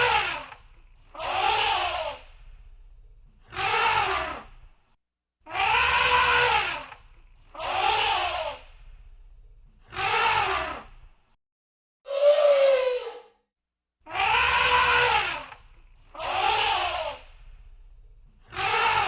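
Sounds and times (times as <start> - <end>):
low rumble: 2.3 - 3.4
elephant trumpeting: 5.5 - 6.8, 14.1 - 15.4.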